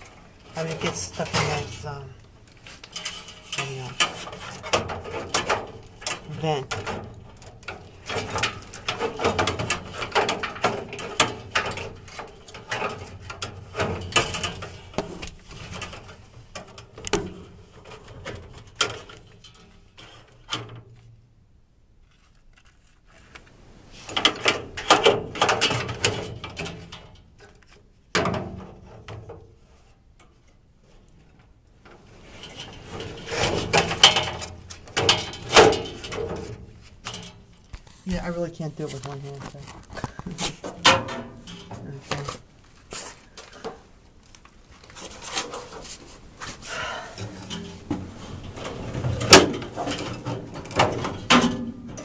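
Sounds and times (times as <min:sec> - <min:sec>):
filter scraping and rattling in slot: 0:00.0 - 0:20.9, 0:31.8 - 0:52.0.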